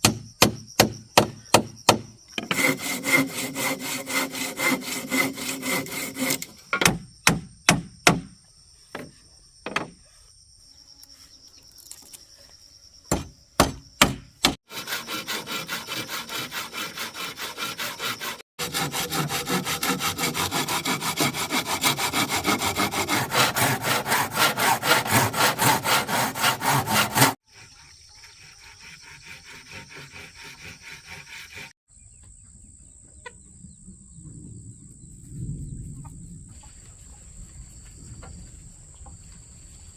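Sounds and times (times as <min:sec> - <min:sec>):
sharp knocks: 0:00.0 - 0:02.7, 0:06.7 - 0:08.3, 0:13.1 - 0:14.6
high insect buzz: 0:00.1 - 0:18.4
hand saw cutting wood: 0:01.9 - 0:07.0, 0:14.0 - 0:31.8.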